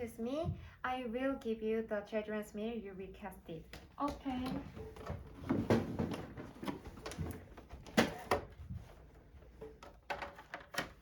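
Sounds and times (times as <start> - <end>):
tray items knocking and clattering: 4.2 - 11.0.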